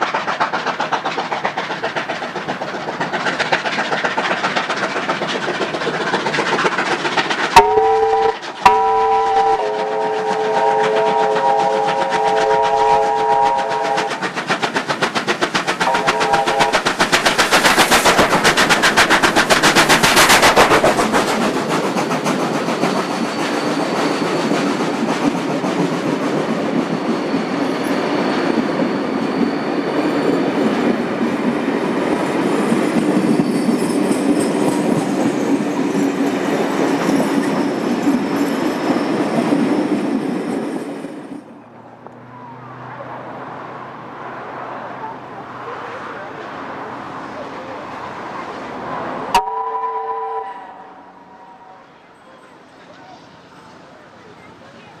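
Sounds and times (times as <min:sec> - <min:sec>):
rapid steam exhaust beats: 0:00.0 - 0:27.4
train carriages rumbling and clacking: 0:00.0 - 0:55.0
steam locomotive chime whistle: 0:07.6 - 0:14.2, 0:15.8 - 0:16.9, 0:49.3 - 0:52.6.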